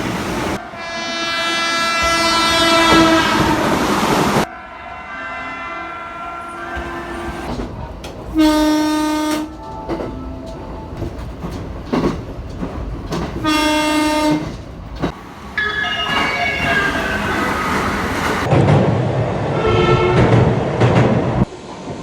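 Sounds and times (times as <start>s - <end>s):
train running on rails: 0.0s - 22.0s
higher train horn tone: 0.5s - 7.6s, 8.3s - 11.0s, 13.4s - 14.6s, 19.5s - 20.6s
train horn blasts: 0.6s - 7.5s, 8.4s - 10.7s, 13.4s - 14.5s, 19.5s - 20.5s.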